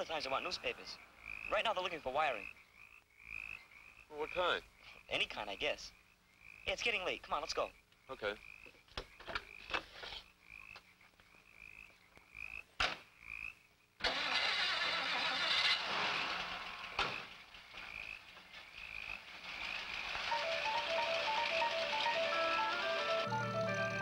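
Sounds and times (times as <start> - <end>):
car engine running: 14.8 - 24.0
rhythmic night chirping: 17.8 - 24.0
plinking music cue: 20.3 - 24.0.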